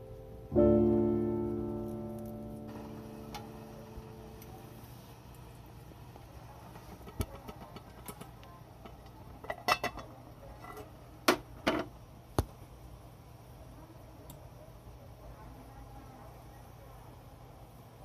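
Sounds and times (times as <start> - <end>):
metal cookware clinking: 9.4 - 10.9.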